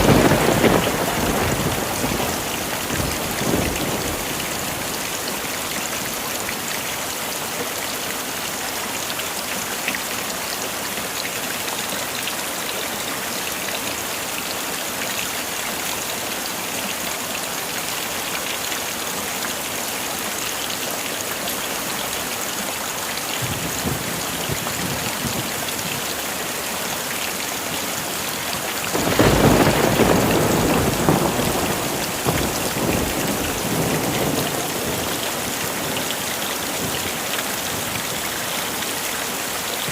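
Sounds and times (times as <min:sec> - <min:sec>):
thunder rumbling: 0:00.0 - 0:05.1, 0:23.4 - 0:26.0, 0:28.9 - 0:38.1
heavy rain falling: 0:00.0 - 0:39.9.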